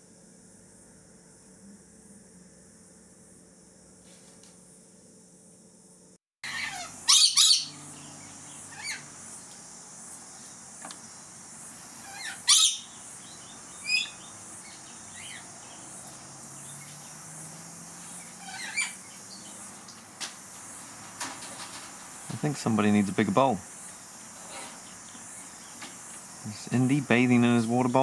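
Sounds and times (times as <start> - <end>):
bird chirps: 6.4 - 9.2, 12.0 - 20.1
birds screeching: 6.4 - 9.5, 10.4 - 28.0.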